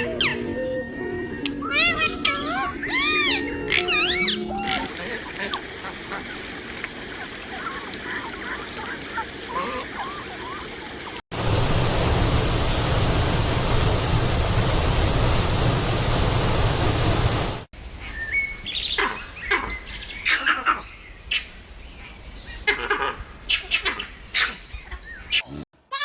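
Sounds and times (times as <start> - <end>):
birds chirping and calling: 0.0 - 11.2, 17.8 - 25.6
rushing noise with deep rumble: 11.3 - 17.7.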